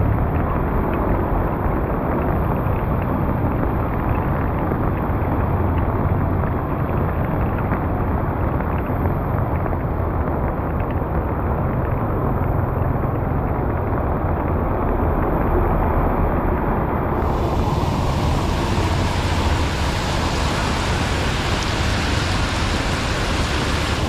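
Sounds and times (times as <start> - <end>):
floodwater rushing into drain: 17.2 - 24.0.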